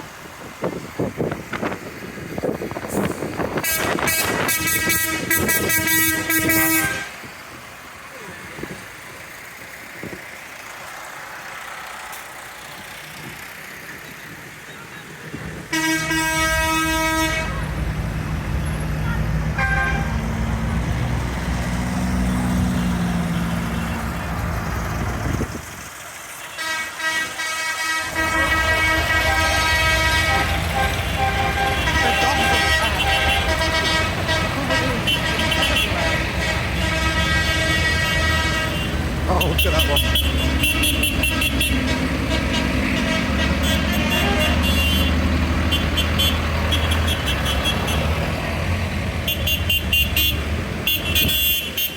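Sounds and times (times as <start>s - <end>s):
tractor engine rumble: 0.0s - 51.9s
tractor horn toots: 3.5s - 7.3s, 15.7s - 17.7s, 19.2s - 20.2s, 26.5s - 48.2s, 49.2s - 51.9s.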